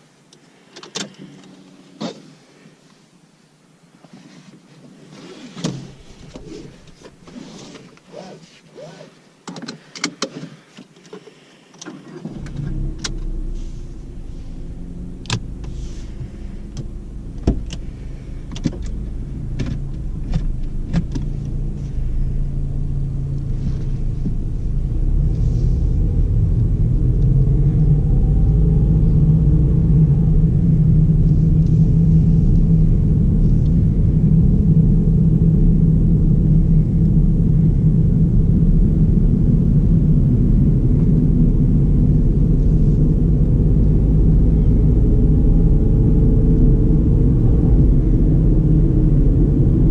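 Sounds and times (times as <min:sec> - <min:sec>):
road rumble: 0:00.0 - 0:49.9
car engine accelerating: 0:12.2 - 0:49.9
clicks and knocks in car cabin: 0:16.7 - 0:17.9, 0:18.5 - 0:21.6.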